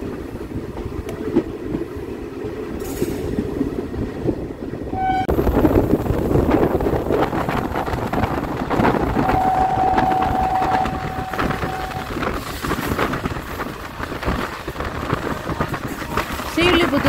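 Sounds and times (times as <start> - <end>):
train wheels rumbling on rails: 0.0 - 17.0
steady high tone: 9.1 - 12.4.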